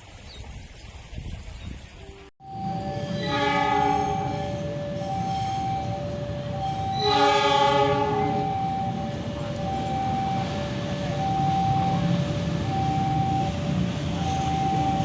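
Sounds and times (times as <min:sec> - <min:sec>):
rumble of passing train: 0:00.9 - 0:15.0
level crossing alarm two-tone: 0:02.4 - 0:15.0
train horn chord: 0:02.7 - 0:09.8.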